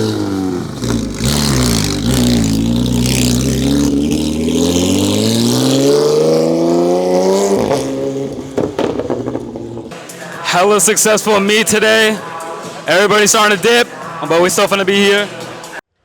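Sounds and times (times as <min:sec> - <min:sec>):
sharp exhaust pops: 0:00.0 - 0:10.1
car engine accelerating: 0:00.0 - 0:15.8.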